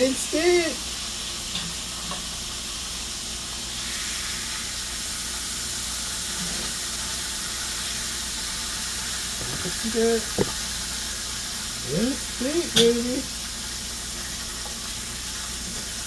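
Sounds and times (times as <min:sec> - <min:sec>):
meat sizzling in hot oil: 0:00.0 - 0:16.0.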